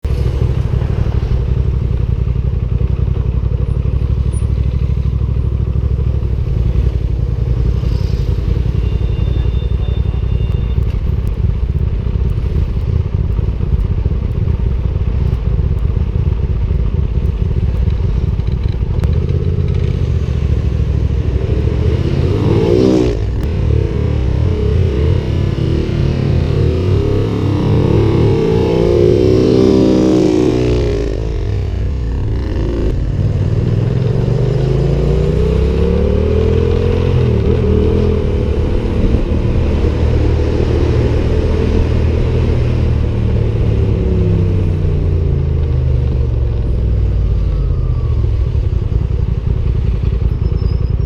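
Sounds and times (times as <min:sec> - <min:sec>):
motorcycle engine running: 0:00.0 - 0:51.0
motorcycle passing close: 0:15.8 - 0:51.0
wind rush on microphone: 0:37.2 - 0:45.0.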